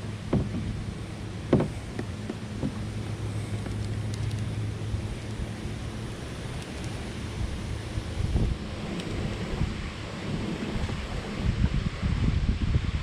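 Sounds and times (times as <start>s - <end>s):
small boat motor humming: 0.0s - 12.0s
wind noise: 0.0s - 13.0s
sharp knocks: 0.3s - 0.8s, 1.5s - 2.8s.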